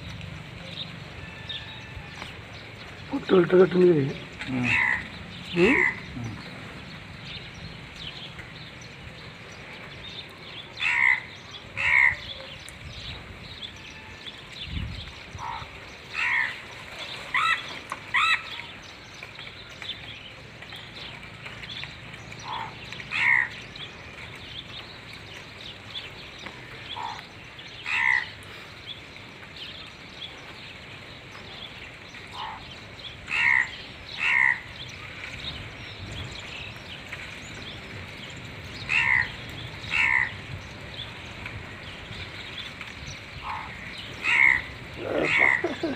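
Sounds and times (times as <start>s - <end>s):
bird giving harsh calls: 4.5s - 6.6s, 17.3s - 18.6s, 43.4s - 45.9s.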